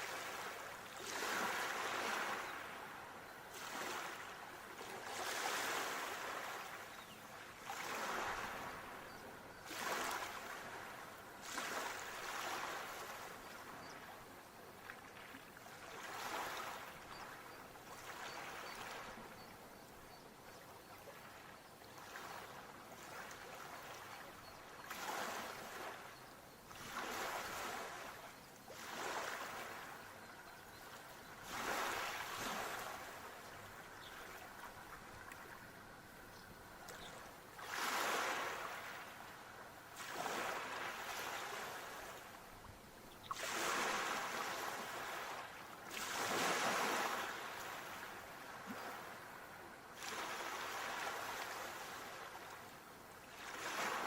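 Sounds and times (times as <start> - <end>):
sea waves breaking: 26.8 - 30.0, 30.9 - 39.2, 40.0 - 42.3, 43.2 - 52.4.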